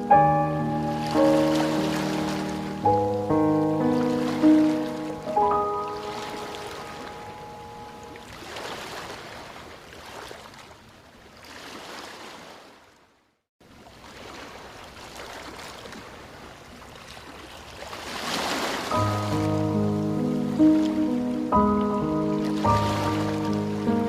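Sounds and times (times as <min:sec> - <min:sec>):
background music: 0:00.0 - 0:08.1, 0:19.0 - 0:24.0
running water rushing: 0:00.0 - 0:10.6, 0:13.9 - 0:24.0.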